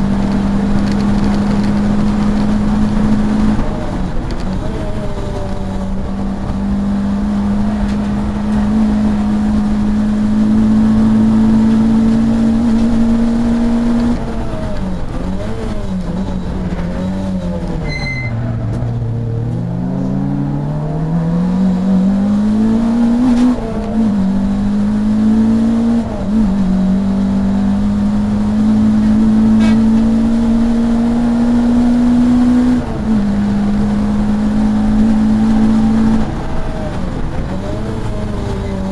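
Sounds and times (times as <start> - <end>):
race car engine revving: 0.0 - 38.9
short beep: 17.8 - 18.5.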